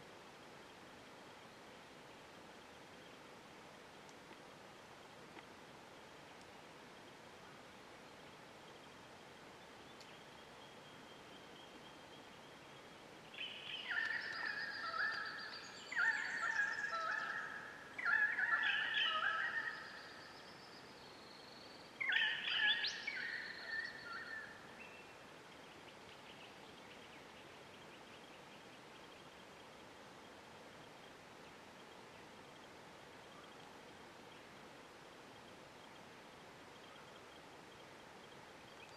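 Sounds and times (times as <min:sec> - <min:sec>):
bird warbling calls: 0:13.3 - 0:20.5, 0:22.0 - 0:25.2.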